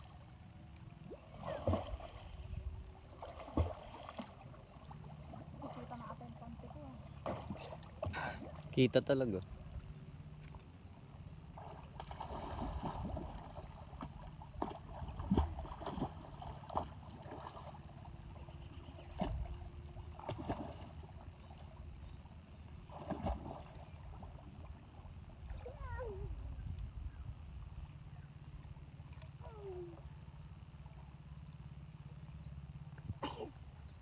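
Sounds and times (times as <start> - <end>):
river water running: 0.0 - 34.0
sharp knocks and splashes: 1.3 - 2.3, 3.1 - 6.0, 7.1 - 8.8, 11.6 - 17.9, 20.2 - 21.2, 22.8 - 24.4.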